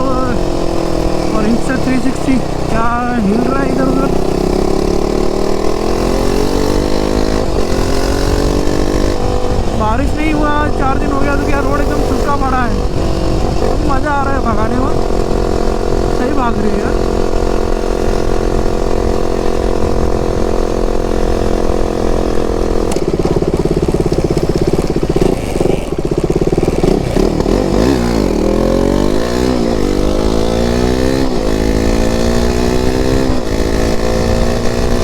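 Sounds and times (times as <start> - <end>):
motorcycle engine revving through gears: 0.0 - 35.0.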